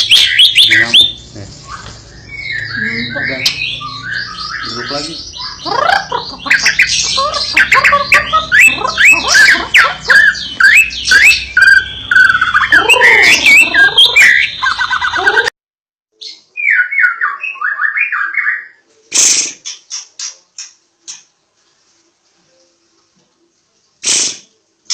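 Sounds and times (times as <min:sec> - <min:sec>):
bird singing whistled phrases: 0:00.0 - 0:05.7, 0:06.6 - 0:15.4, 0:16.2 - 0:18.8.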